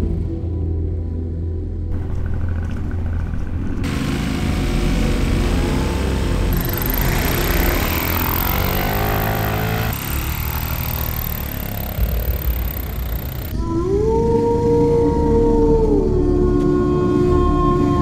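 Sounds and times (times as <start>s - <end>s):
motorcycle engine accelerating: 1.9s - 13.6s.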